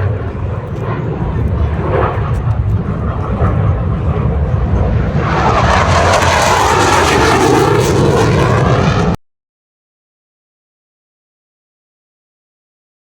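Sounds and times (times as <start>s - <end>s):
aircraft flying past: 0.0s - 9.2s.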